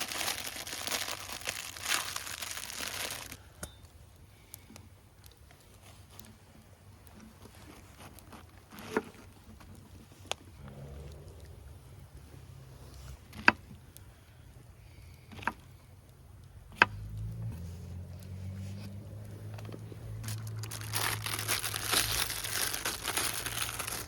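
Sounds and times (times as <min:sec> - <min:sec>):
campfire wood popping: 0:00.0 - 0:12.6
low rumble: 0:10.5 - 0:13.2.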